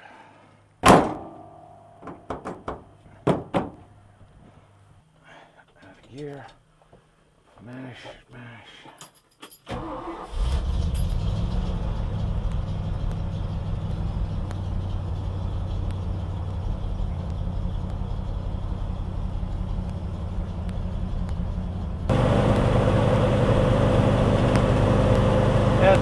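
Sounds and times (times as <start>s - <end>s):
truck engine starting and idling: 9.7s - 26.0s.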